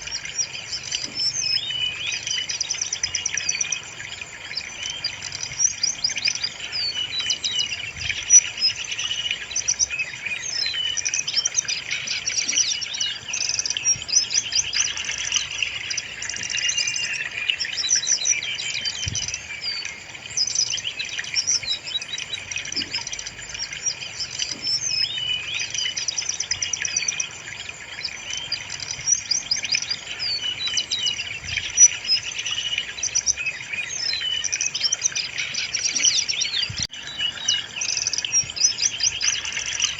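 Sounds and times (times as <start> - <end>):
bird song with chirps and trills: 0.0 - 39.9.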